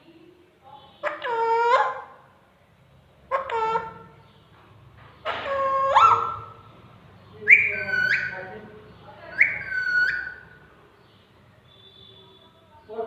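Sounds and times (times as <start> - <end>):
parrot whistling: 5.4 - 6.6, 7.4 - 8.4, 9.3 - 10.6.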